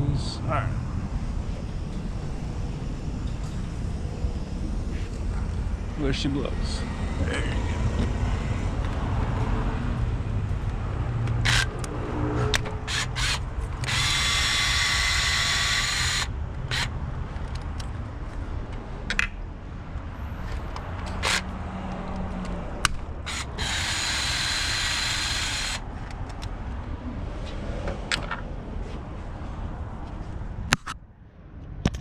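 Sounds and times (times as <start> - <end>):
power ratchet whining buzz: 1.2 - 9.5, 11.2 - 17.0, 20.5 - 21.5, 22.8 - 25.9.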